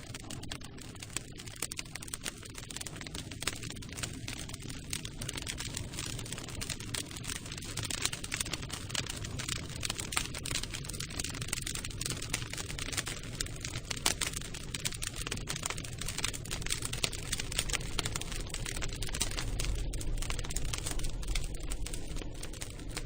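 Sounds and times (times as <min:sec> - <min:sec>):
campfire crackling: 0:00.0 - 0:23.0
steady low rumble: 0:16.2 - 0:23.0.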